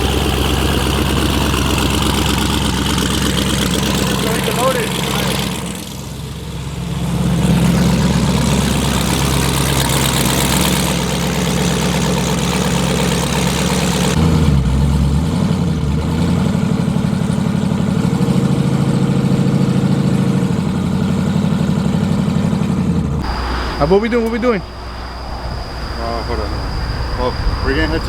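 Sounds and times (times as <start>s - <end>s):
car engine idling: 0.0s - 28.0s
loud hiss: 23.2s - 28.0s.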